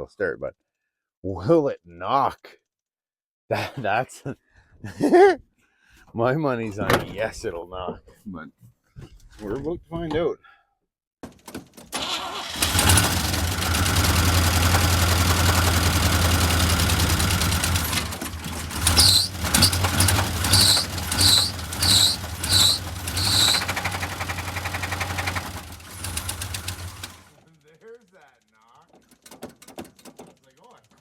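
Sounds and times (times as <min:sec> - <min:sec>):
engine running with knock: 0:12.0 - 0:27.4, 0:28.9 - 0:31.0
short high squeals: 0:18.1 - 0:24.1.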